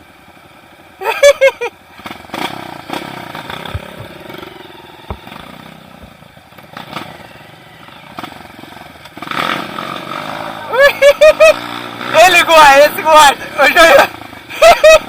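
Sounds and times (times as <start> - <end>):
motorcycle engine running: 0.0 - 15.0
sharp knocks and clatter: 3.5 - 4.3.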